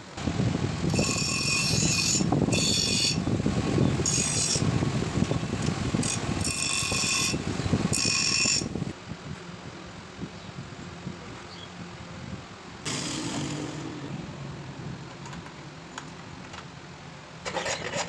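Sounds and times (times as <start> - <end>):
high-pitched metallic squeal: 0.9 - 3.2.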